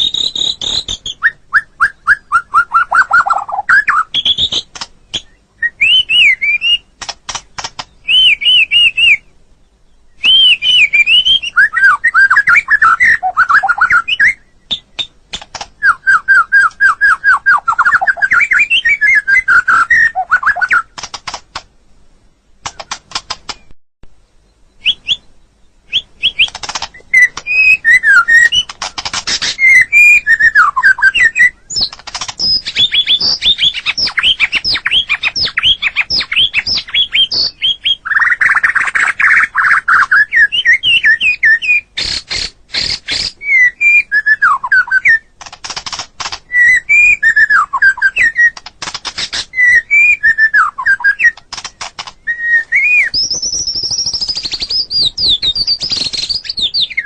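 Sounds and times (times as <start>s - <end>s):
songbird whistling: 0.0s - 6.9s, 7.8s - 15.2s, 15.8s - 20.9s, 24.5s - 45.3s, 46.5s - 48.6s, 49.2s - 51.5s, 52.1s - 57.0s
bird sharp clicking notes: 3.0s - 5.4s, 6.0s - 8.7s, 14.7s - 21.7s, 22.6s - 23.8s, 26.0s - 43.4s, 44.6s - 52.3s.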